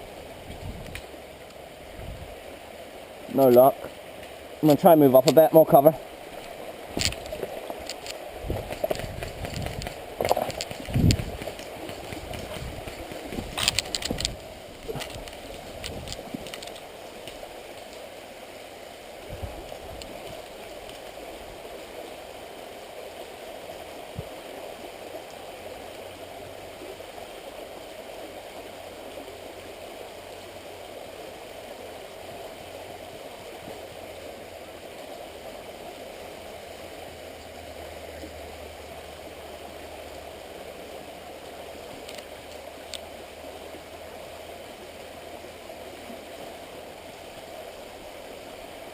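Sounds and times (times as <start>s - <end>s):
steady outdoor hiss: 0.0s - 48.9s
rustling through woodland: 3.3s - 22.0s, 33.3s - 48.9s
sharp clicks: 7.0s - 17.4s.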